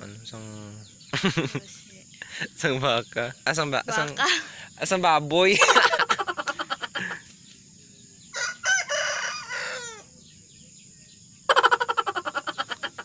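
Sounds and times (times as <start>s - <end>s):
rooster crowing: 8.3s - 10.2s.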